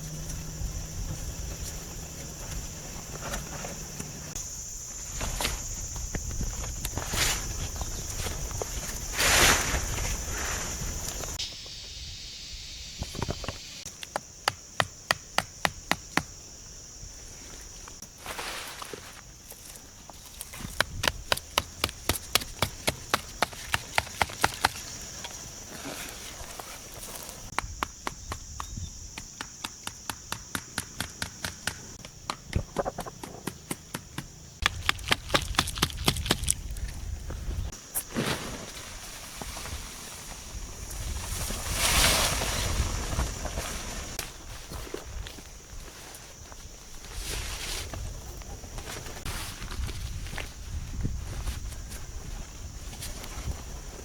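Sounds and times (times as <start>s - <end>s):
steady high hiss: 0.0s - 14.8s
sharp wooden knocks: 27.5s - 36.4s.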